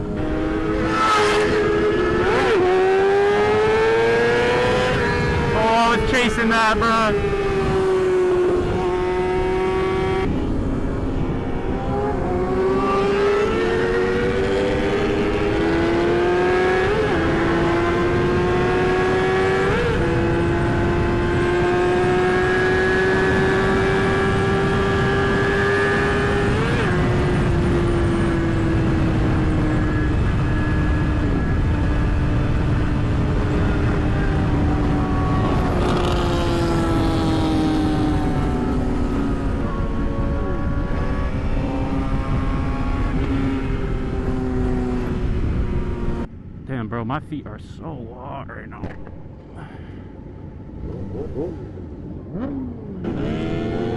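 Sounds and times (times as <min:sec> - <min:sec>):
motorcycle engine at high revs: 0:00.0 - 0:06.0, 0:07.1 - 0:46.2, 0:50.7 - 0:53.9
wind rush on microphone: 0:00.0 - 0:06.1, 0:06.8 - 0:46.6.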